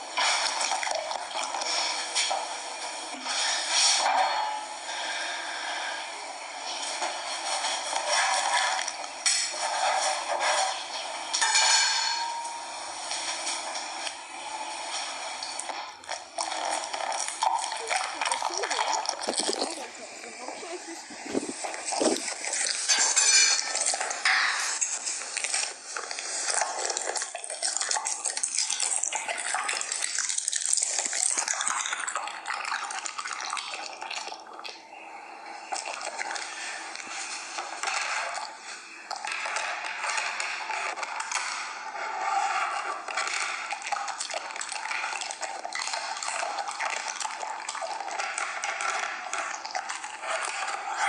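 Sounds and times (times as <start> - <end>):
dog lapping from a bowl: 15.5 - 20.4, 26.4 - 34.8, 38.0 - 51.0.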